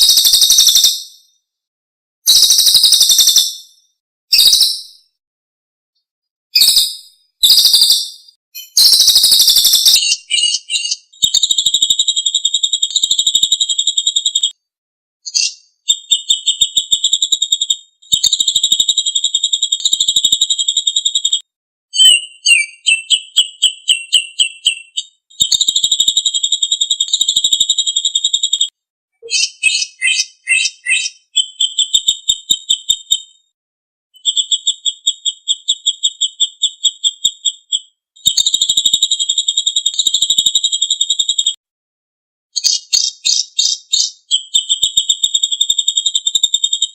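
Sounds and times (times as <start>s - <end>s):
songbird trilling and chattering: 6.6s - 14.4s, 22.0s - 25.9s, 29.2s - 33.3s, 42.6s - 46.0s.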